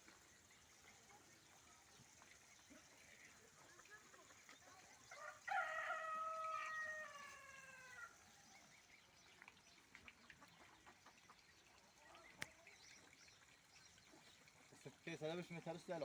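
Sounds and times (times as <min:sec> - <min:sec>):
rooster crowing: 0:05.2 - 0:08.1.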